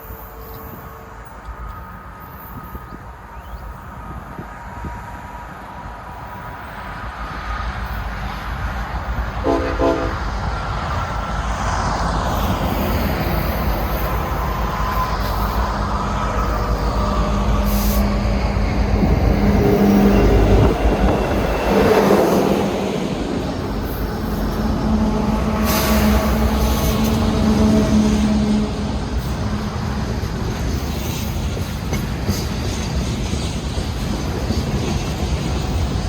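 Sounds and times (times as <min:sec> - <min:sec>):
train horn blast: 0:00.0 - 0:01.5, 0:09.4 - 0:10.4, 0:24.4 - 0:29.7
diesel locomotive engine rumbling: 0:00.0 - 0:36.0.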